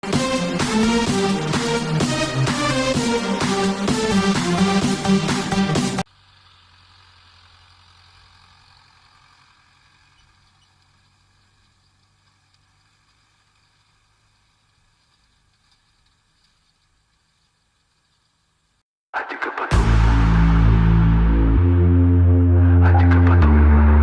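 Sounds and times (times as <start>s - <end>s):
electronic music: 0.0s - 6.1s, 19.2s - 24.0s
faint engine hum: 6.1s - 18.1s.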